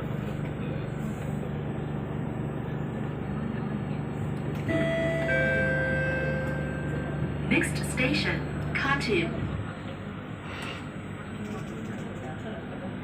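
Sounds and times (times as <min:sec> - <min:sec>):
train rumble inside carriage: 0:00.0 - 0:13.0
two-note descending chime: 0:04.7 - 0:07.3.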